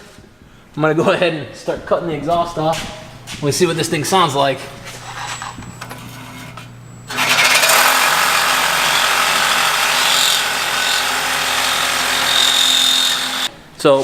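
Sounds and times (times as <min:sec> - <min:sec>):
power tool cutting metal pipe: 0:07.1 - 0:13.5.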